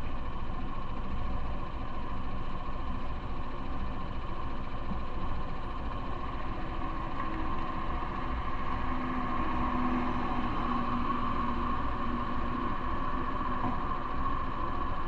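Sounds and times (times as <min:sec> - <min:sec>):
faint engine hum: 0:00.0 - 0:15.0
vehicle road noise: 0:06.1 - 0:15.0.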